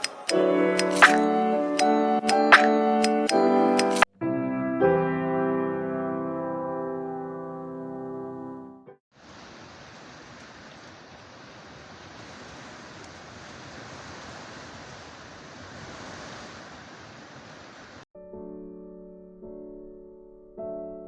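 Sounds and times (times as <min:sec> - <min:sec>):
steady rain hiss: 0:09.1 - 0:18.0.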